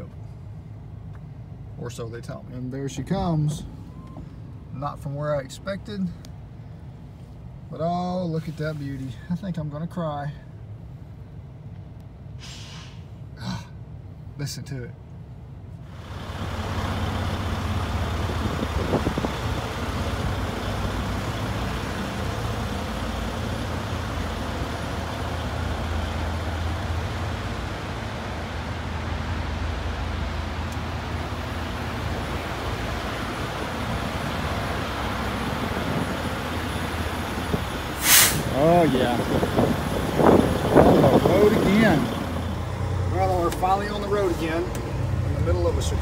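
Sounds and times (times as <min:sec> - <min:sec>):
diesel truck engine running: 0:15.2 - 0:46.0.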